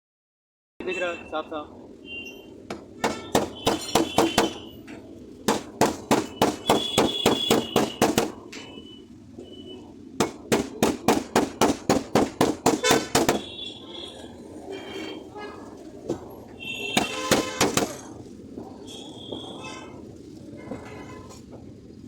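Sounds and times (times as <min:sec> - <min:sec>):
hammer tapping sheet metal: 0:02.7 - 0:04.6, 0:05.5 - 0:08.4, 0:10.2 - 0:13.4, 0:17.0 - 0:18.0.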